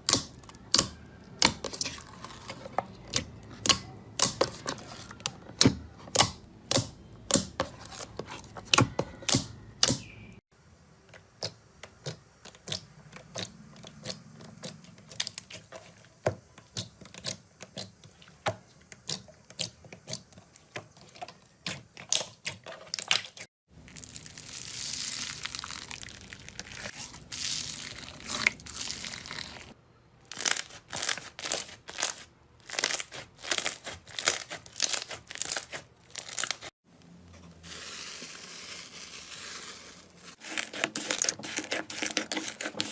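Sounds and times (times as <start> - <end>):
rustling: 37.4 - 42.9.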